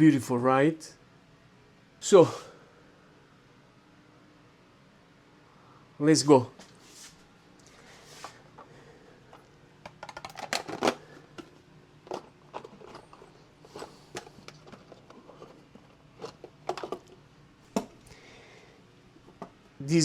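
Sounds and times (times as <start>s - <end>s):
tools and metal parts clicking: 10.0s - 11.0s.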